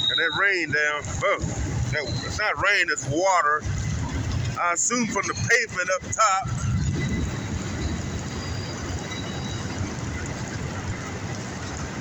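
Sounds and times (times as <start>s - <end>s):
faint wheel squeal: 0.0s - 1.0s, 6.5s - 10.3s
freight cars rumbling on rails: 0.0s - 12.0s.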